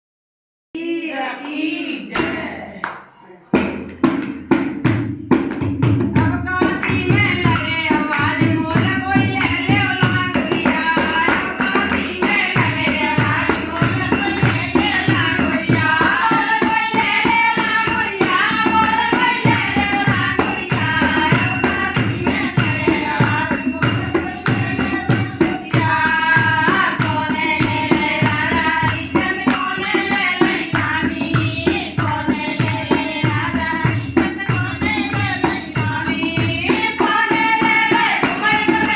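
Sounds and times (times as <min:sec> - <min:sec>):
jingling percussion: 0:02.2 - 0:38.9
steady drum beat: 0:03.6 - 0:38.9.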